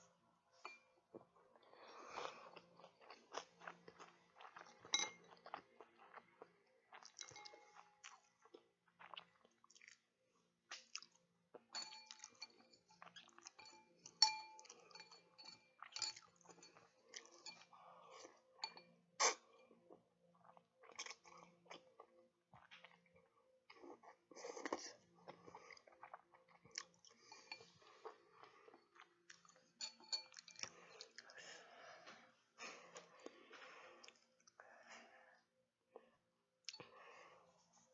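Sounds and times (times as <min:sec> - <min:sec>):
person chewing with wet smacks: 0:01.1 - 0:10.1, 0:10.7 - 0:15.2, 0:15.8 - 0:31.4.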